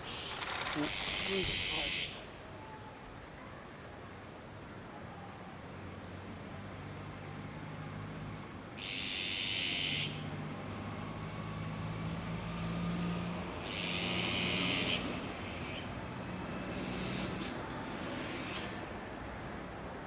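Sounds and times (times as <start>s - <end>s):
magpie harsh rasping calls: 0.0s - 2.2s, 8.8s - 10.2s, 13.6s - 15.9s.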